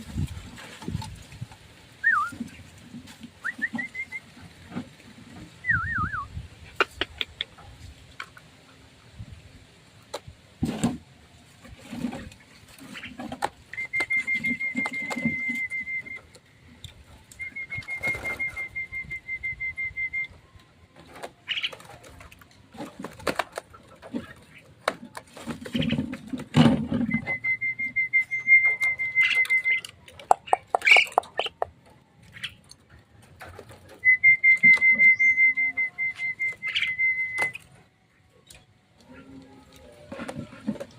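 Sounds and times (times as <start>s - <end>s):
bird trilling: 28.1s - 31.6s.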